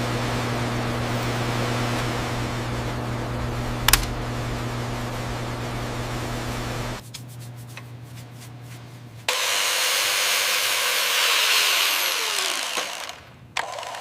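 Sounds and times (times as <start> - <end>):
loud steady hiss: 0.0 - 7.0
steady mechanical hum: 0.0 - 14.0.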